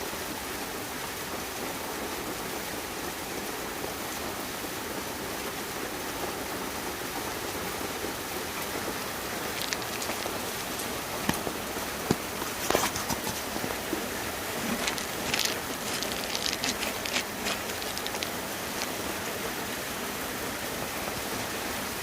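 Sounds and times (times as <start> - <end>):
water hissing: 8.6 - 22.0
sharp ticks or small splashes: 9.2 - 19.4.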